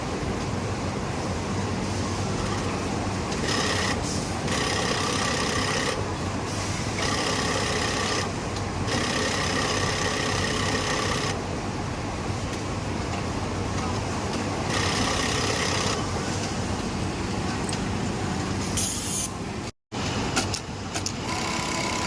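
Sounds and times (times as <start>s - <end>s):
factory machinery hum: 0.0s - 22.0s
sewing machine motor whine: 3.4s - 6.0s, 7.0s - 8.3s, 8.9s - 11.4s, 14.7s - 16.0s, 21.2s - 22.0s.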